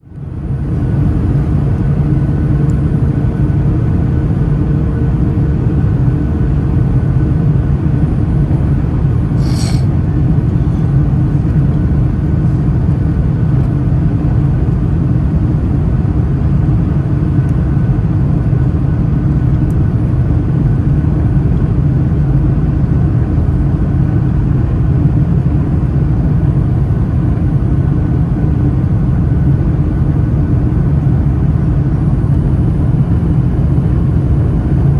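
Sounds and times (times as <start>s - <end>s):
jet engine rumble in cabin: 0.0s - 34.9s
brief hiss: 9.4s - 9.9s.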